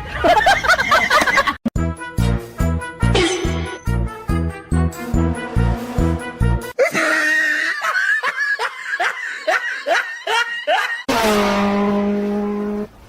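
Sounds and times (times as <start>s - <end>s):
rhythmic bursts of laughter: 6.8s - 11.1s.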